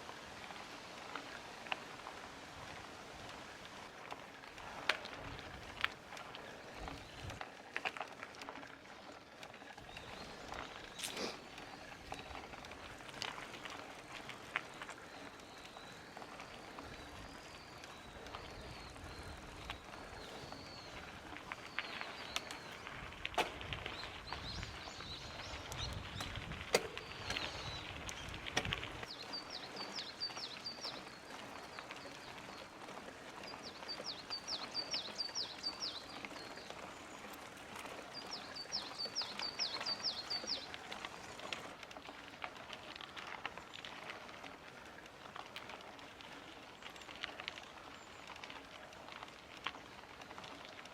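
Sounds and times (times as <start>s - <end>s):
wind rumble: 18.1s - 29.1s
bike clicks and knocks: 21.0s - 29.2s
bird chirping: 38.2s - 40.7s.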